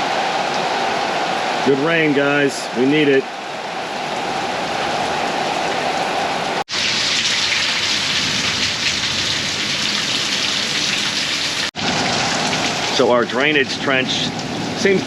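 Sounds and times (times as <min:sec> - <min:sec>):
rain falling: 0:03.3 - 0:15.0.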